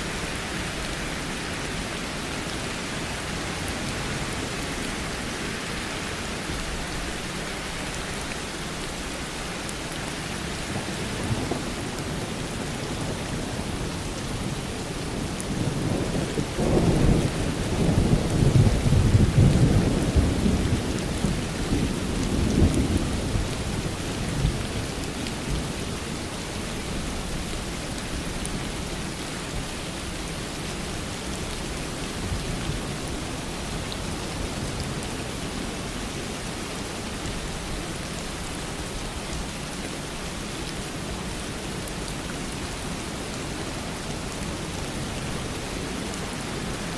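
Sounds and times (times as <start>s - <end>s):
steady rain falling: 0.0s - 46.9s
low roll of thunder: 15.5s - 24.7s.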